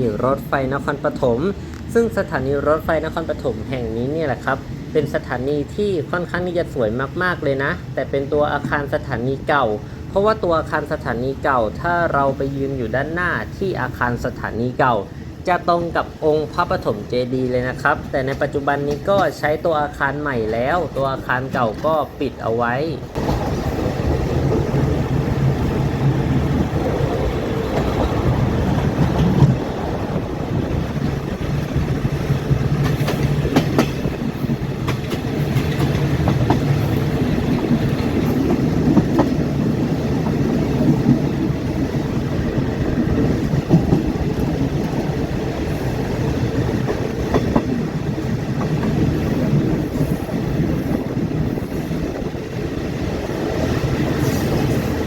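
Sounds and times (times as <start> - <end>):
train wheels rumbling: 0.0 - 55.0.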